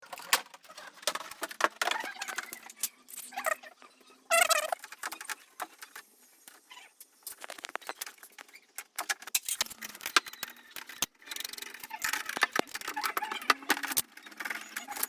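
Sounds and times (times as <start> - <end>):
high-pitched squeak: 4.3 - 5.3.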